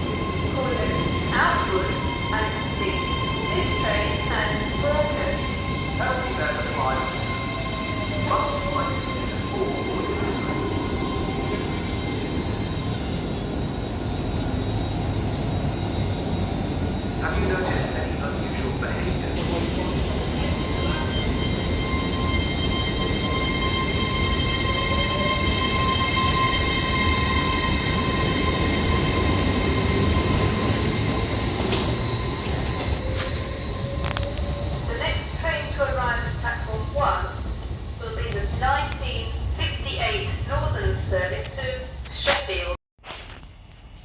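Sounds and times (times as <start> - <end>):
high-pitched whining tones: 0.0 - 35.5
train wheels squealing on rails: 0.0 - 39.2
train low rumble: 0.0 - 44.0.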